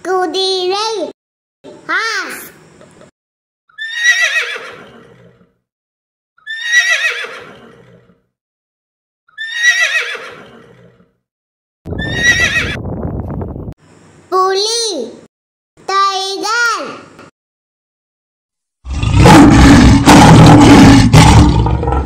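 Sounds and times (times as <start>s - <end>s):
horse whinnying: 3.7s - 5.5s, 6.4s - 8.2s, 9.3s - 11.1s, 11.9s - 12.8s
loud rough noise: 19.0s - 22.0s.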